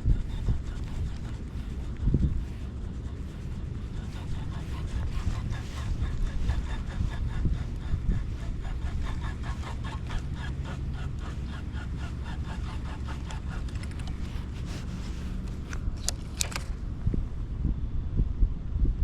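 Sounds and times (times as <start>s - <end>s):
wind rumble on microphone: 0.0s - 19.0s
spinning reel ticking: 2.6s - 14.5s
sharp clicks: 15.3s - 16.8s.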